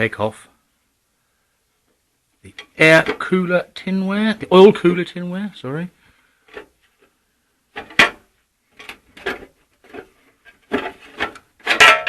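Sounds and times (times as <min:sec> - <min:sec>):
metal tinware and tools clanking: 0:10.7 - 0:12.0.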